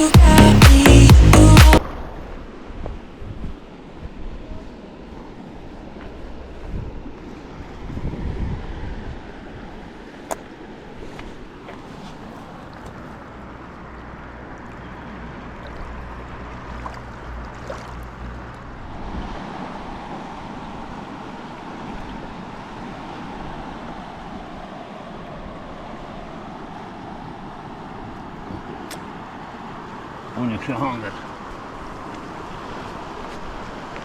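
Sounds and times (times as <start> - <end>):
river water rushing: 0.0 - 2.3, 9.4 - 34.0
wind rumbling on microphone: 1.8 - 4.7, 6.3 - 9.8, 15.7 - 21.0.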